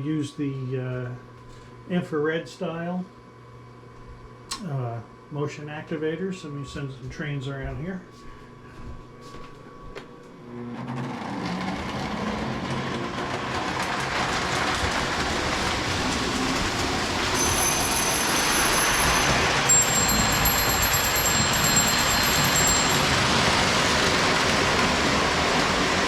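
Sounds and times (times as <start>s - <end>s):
thin high whine: 4.6s - 12.8s, 14.6s - 26.0s
model train rumbling on track: 11.2s - 26.0s.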